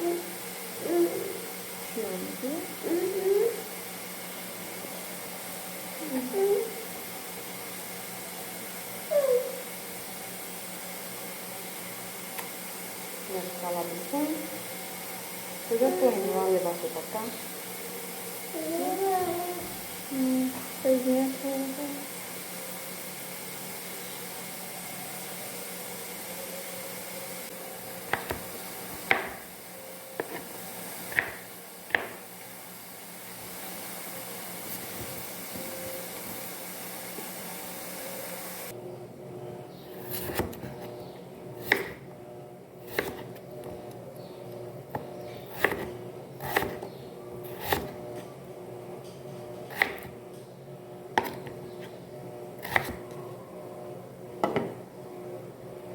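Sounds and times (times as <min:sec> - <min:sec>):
room hiss: 0:00.0 - 0:38.8.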